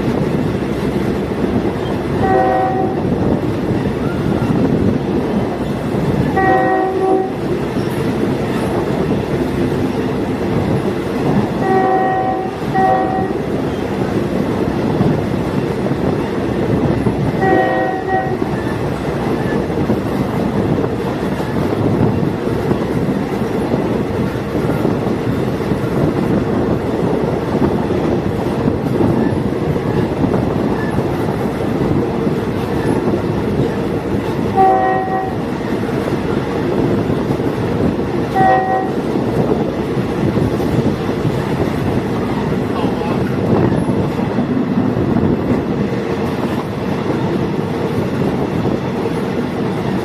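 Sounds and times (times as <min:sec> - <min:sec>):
diesel train rumbling: 0:00.0 - 0:50.0
train horn blasts: 0:02.2 - 0:03.2, 0:06.3 - 0:07.5, 0:11.6 - 0:13.5, 0:17.4 - 0:18.7, 0:34.5 - 0:35.5, 0:38.3 - 0:39.1.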